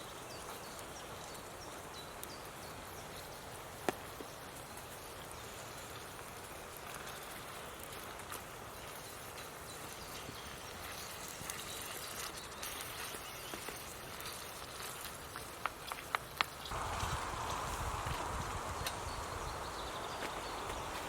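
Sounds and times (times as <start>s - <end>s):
woodland background noise: 0.0s - 21.0s.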